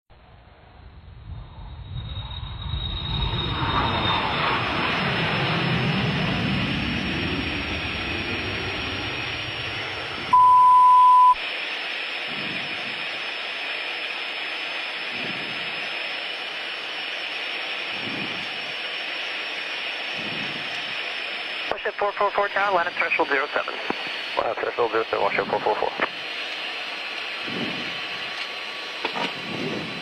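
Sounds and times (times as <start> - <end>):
jet cockpit noise: 3.0 - 30.0
loud high beep: 10.3 - 11.4.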